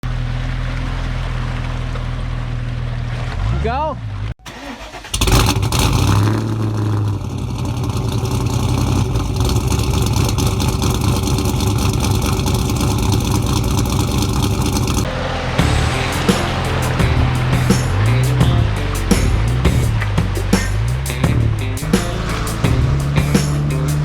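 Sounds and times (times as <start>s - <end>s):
rough road noise: 0.0s - 24.0s
car engine running under load: 5.1s - 24.0s.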